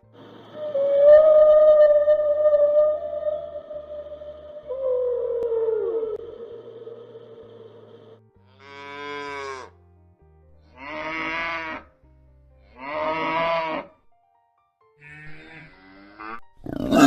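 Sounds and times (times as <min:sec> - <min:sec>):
soft background music: 0:00.0 - 0:17.0
cow mooing: 0:08.5 - 0:09.7, 0:10.7 - 0:11.9, 0:12.7 - 0:13.9, 0:15.0 - 0:17.0.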